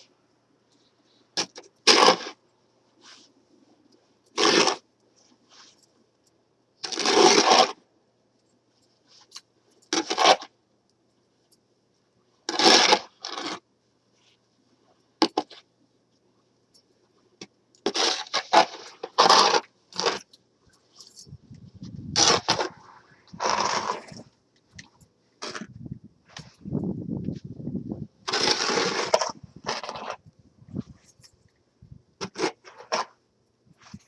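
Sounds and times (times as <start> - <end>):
snow shovel scraping snow: 1.9 - 2.4, 4.4 - 4.8, 6.8 - 7.8, 9.9 - 10.5, 12.5 - 13.6, 17.9 - 20.2, 22.2 - 24.2, 28.3 - 30.2, 32.2 - 33.1.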